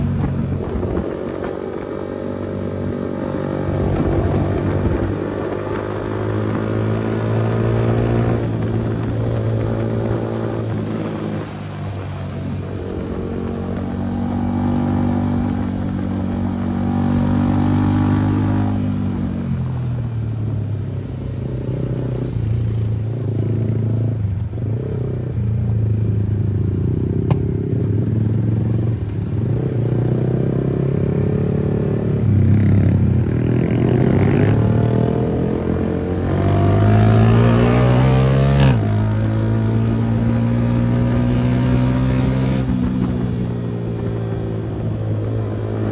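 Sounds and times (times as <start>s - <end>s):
motorcycle engine running: 38.9s - 45.9s.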